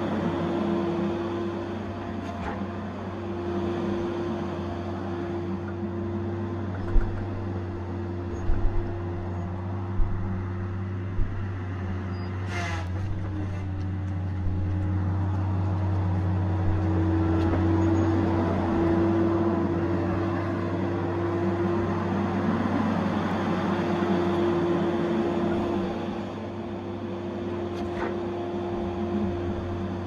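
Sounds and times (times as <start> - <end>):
diesel engine running: 0.0 - 30.0
low thumps: 8.3 - 11.7.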